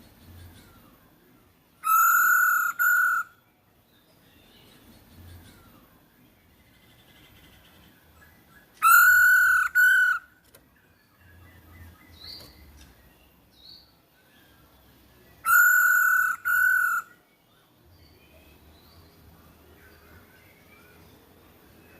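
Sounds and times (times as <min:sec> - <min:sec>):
harsh bird double calls: 0:01.8 - 0:03.4, 0:08.8 - 0:10.4, 0:15.4 - 0:17.2.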